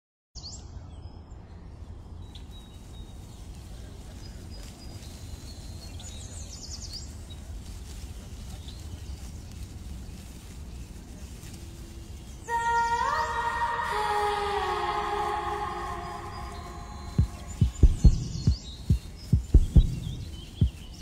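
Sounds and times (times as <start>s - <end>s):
birds chirping: 0.4s - 21.0s
low outdoor rumble: 2.8s - 21.0s.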